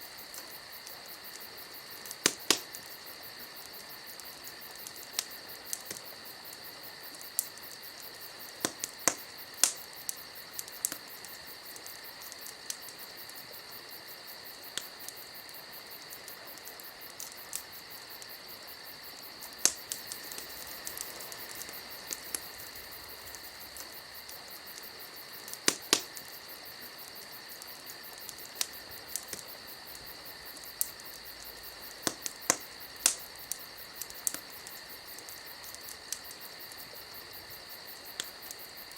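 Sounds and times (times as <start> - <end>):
campfire crackling and popping: 0.0 - 38.9.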